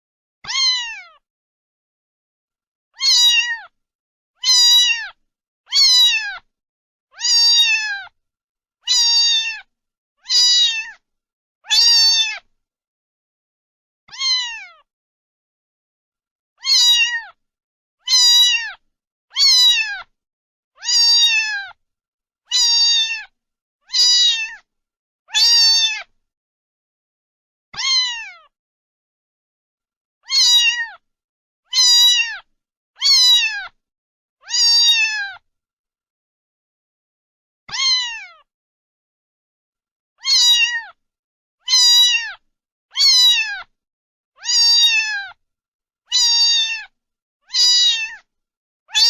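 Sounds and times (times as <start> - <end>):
cat meowing: 0.4 - 1.2, 3.0 - 3.8, 4.4 - 6.5, 7.1 - 8.2, 8.9 - 11.0, 11.6 - 12.5, 14.1 - 14.9, 16.6 - 17.4, 18.0 - 20.1, 20.8 - 21.8, 22.5 - 23.3, 23.9 - 24.7, 25.3 - 26.1, 27.8 - 28.5, 30.2 - 31.0, 31.7 - 33.8, 34.4 - 35.4, 37.7 - 38.5, 40.2 - 41.0, 41.6 - 43.7, 44.4 - 45.4, 46.1 - 46.9, 47.5 - 48.3.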